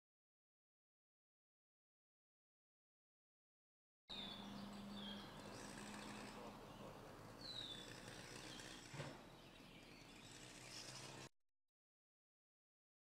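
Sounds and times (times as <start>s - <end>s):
bird chirps: 4.1s - 11.3s.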